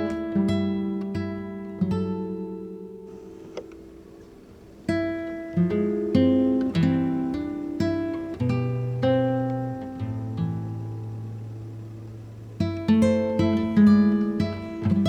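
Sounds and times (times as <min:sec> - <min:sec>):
acoustic guitar plucked notes: 0:00.0 - 0:15.0.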